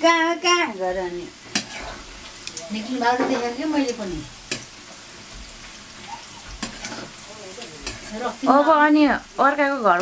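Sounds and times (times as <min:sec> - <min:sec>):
food sizzling in a pan: 0:00.0 - 0:10.0
utensil scraping a pan: 0:00.9 - 0:08.5.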